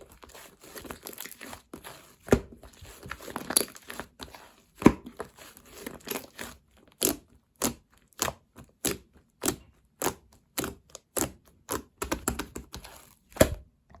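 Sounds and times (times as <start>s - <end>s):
slime squishing with clicking pops: 5.8s - 14.0s.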